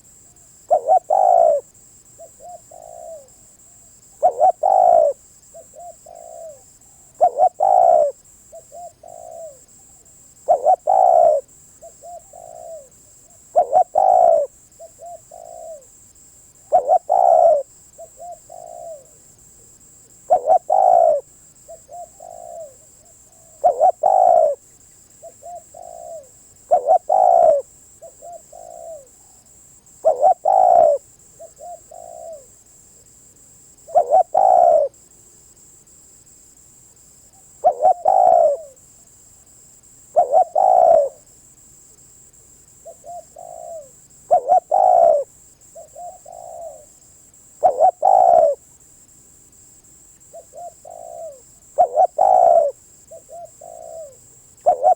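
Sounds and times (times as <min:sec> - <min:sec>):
dove cooing: 0:00.7 - 0:03.4, 0:04.2 - 0:15.9, 0:16.7 - 0:19.2, 0:20.2 - 0:24.6, 0:25.2 - 0:29.4, 0:30.0 - 0:32.5, 0:33.8 - 0:35.0, 0:37.6 - 0:38.8, 0:40.2 - 0:41.3, 0:42.8 - 0:46.9, 0:47.6 - 0:48.6, 0:50.3 - 0:54.9.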